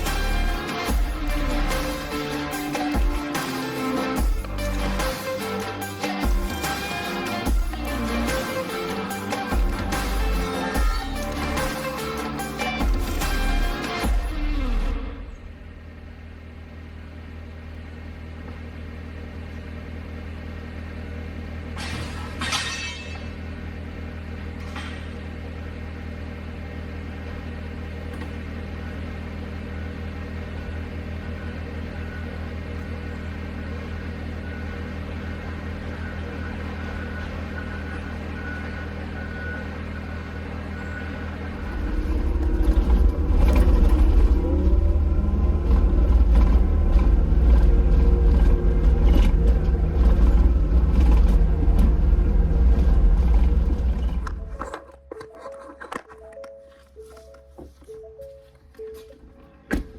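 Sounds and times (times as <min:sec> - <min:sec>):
engine droning: 0:00.0 - 0:59.9.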